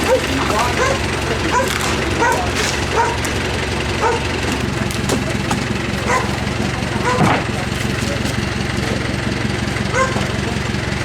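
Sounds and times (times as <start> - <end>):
dog barking: 0.0 - 4.6, 5.9 - 8.2, 9.8 - 10.7
tractor engine running: 0.0 - 11.0.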